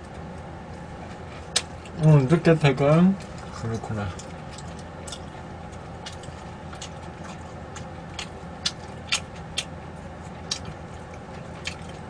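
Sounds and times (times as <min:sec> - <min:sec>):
steady low hum: 0:00.0 - 0:12.0
chewing mouth clicks and smacks: 0:03.2 - 0:12.0.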